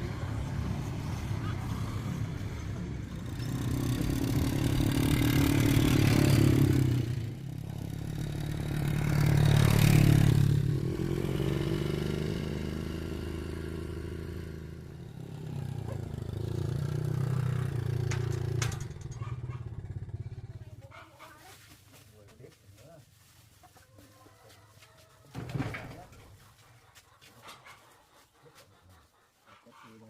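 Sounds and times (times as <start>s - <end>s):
small engine running: 0.3s - 14.1s.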